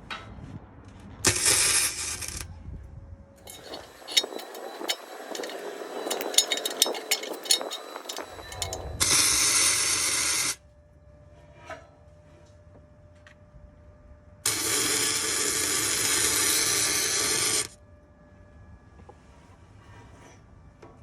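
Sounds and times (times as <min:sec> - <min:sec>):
arc welder crackling hiss: 0:01.2 - 0:02.4, 0:03.4 - 0:10.6, 0:14.5 - 0:17.7.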